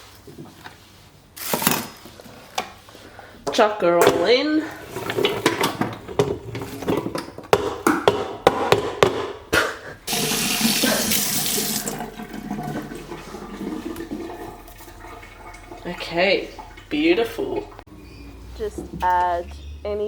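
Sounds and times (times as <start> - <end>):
running water: 10.1 - 17.9.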